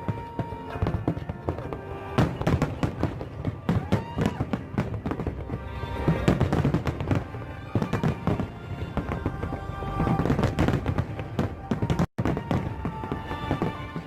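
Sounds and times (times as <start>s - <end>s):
fireworks bangs and crackles: 0.0s - 14.0s
music playing: 0.0s - 14.0s.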